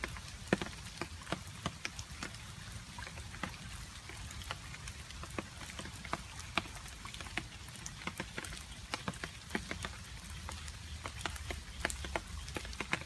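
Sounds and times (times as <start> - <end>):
water drops ticking: 3.0 - 13.0.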